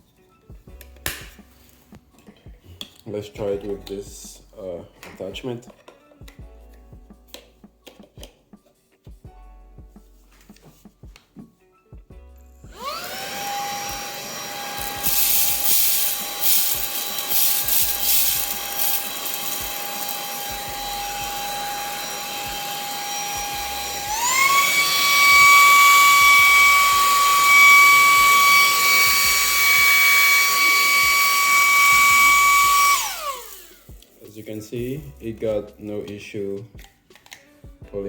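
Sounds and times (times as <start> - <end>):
handheld vacuum whining: 12.7 - 34.7
debris rattling up nozzle: 14.8 - 20.5.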